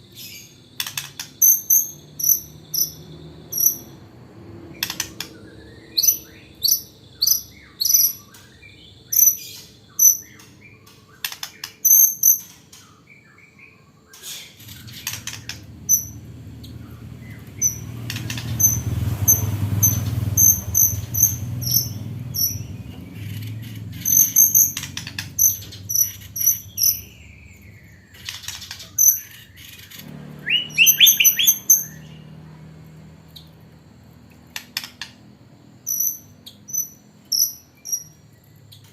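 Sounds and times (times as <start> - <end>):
bird chirps and whistles: 4.9 - 10.4, 17.6 - 27.9, 30.4 - 32.2.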